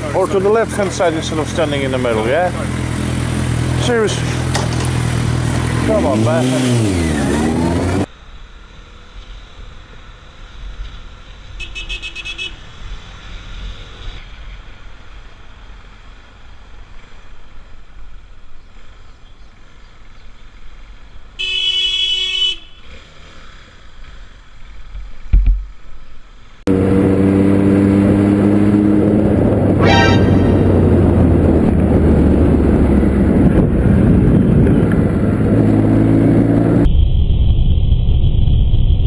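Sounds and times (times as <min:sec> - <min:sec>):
street traffic: 0:00.0 - 0:36.9
steady pitched tone: 0:29.7 - 0:32.0
car horn short beeps: 0:29.8 - 0:31.1
loud car horn blast: 0:29.8 - 0:31.3.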